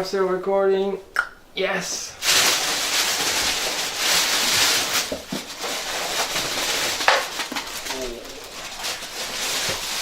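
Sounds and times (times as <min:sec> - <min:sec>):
cardboard packaging rustling: 0:02.2 - 0:10.0.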